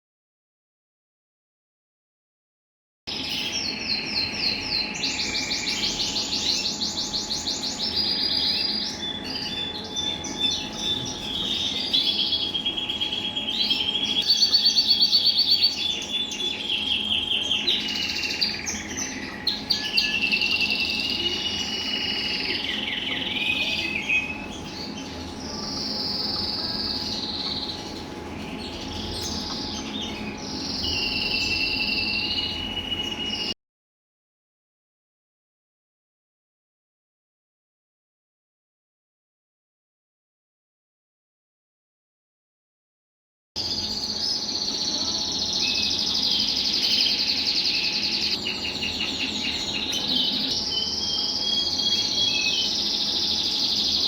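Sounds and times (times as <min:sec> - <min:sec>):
canaries singing trills: 0:03.1 - 0:33.6, 0:43.6 - 0:54.0.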